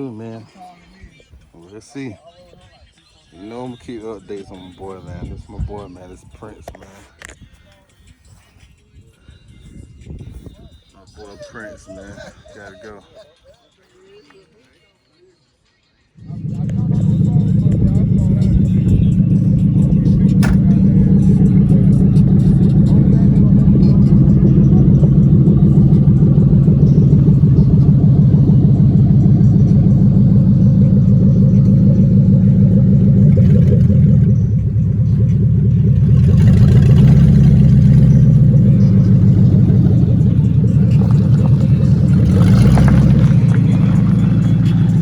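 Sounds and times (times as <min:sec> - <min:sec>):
car engine revving: 0:16.2 - 0:45.0.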